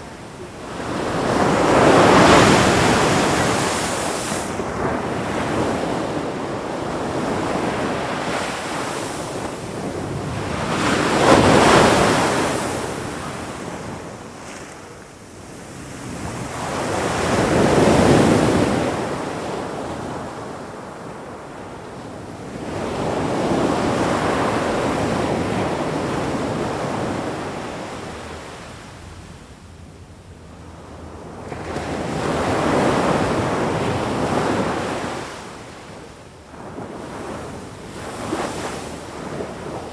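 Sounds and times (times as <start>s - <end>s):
ocean waves breaking on shore: 0.0s - 21.4s, 30.5s - 39.9s.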